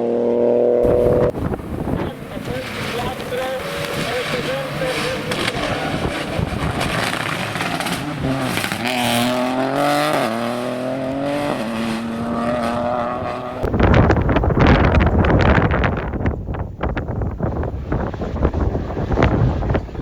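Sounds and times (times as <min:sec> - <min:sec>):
rally car engine revving: 0:00.0 - 0:14.2
car passing by: 0:00.8 - 0:13.6.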